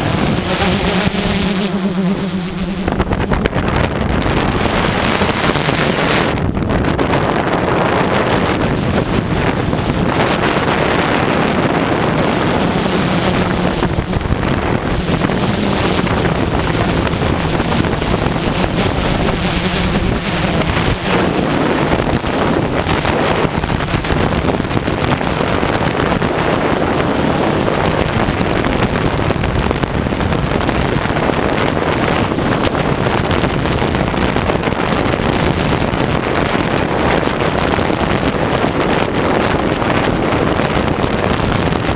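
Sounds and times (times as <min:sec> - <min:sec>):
drone motors and propellers: 0:00.0 - 0:41.9
wind noise on microphone: 0:00.0 - 0:41.9.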